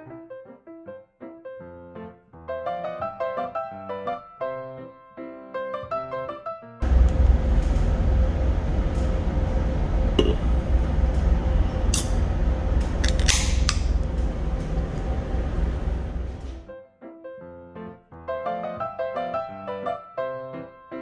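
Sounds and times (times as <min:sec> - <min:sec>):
background piano music: 0:00.0 - 0:13.4, 0:14.0 - 0:21.0
faint constant hum: 0:06.8 - 0:16.7
vehicle interior rumble: 0:06.8 - 0:16.7.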